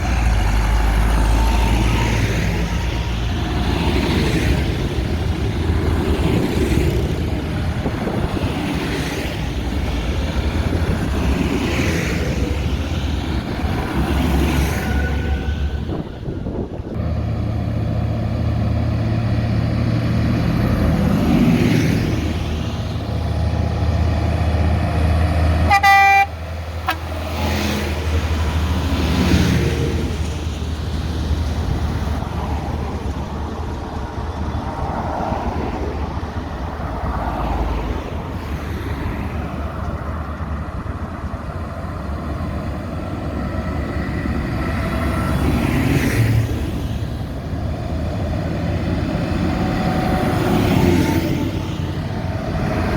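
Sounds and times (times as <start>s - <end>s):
tractor engines passing by: 0.0s - 52.9s
horn toot: 25.6s - 27.1s.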